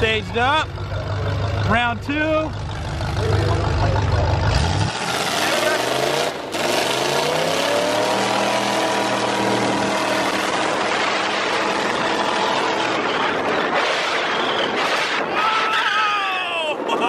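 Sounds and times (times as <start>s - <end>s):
car engines revving hard: 2.6s - 15.4s
loud rush of noise: 2.8s - 16.9s.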